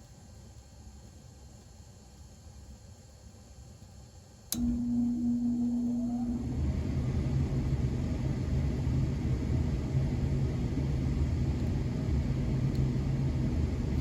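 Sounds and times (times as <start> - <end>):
gas furnace rumbling: 4.5 - 14.0.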